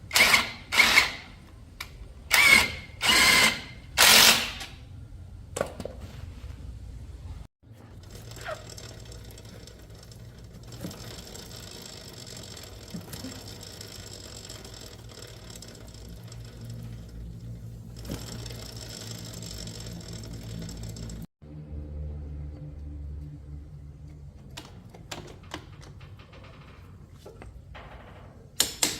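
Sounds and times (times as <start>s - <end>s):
mechanical clatter: 7.8s - 21.3s
low hum: 15.5s - 24.4s.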